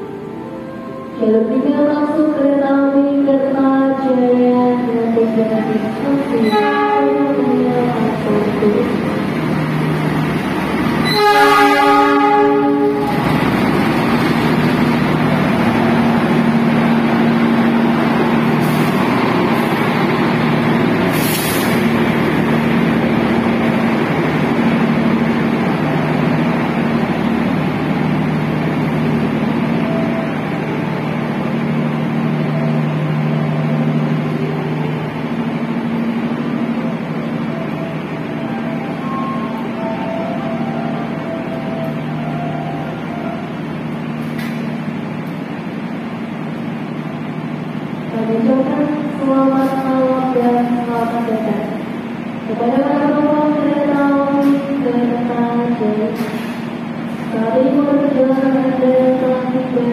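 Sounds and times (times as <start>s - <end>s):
train rolling past: 0.0s - 59.9s
locomotive engine running: 4.3s - 59.9s
locomotive horn blast: 5.9s - 9.0s, 11.0s - 13.2s.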